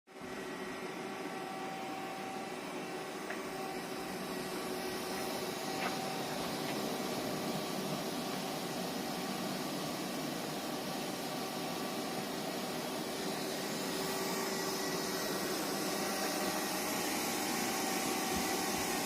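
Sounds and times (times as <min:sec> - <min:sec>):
constant machine tones: 0:00.1 - 0:19.0
lathe hiss and hum: 0:00.1 - 0:19.0.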